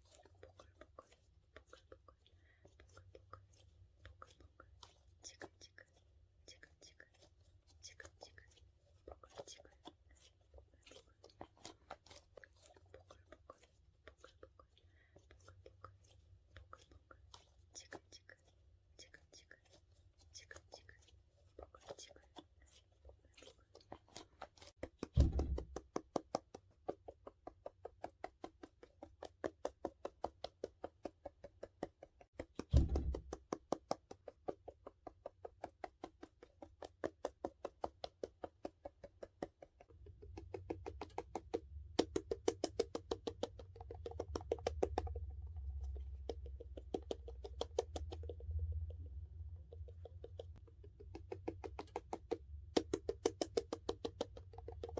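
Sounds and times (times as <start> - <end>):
dull thumps: 25.1 - 25.8, 32.6 - 33.4.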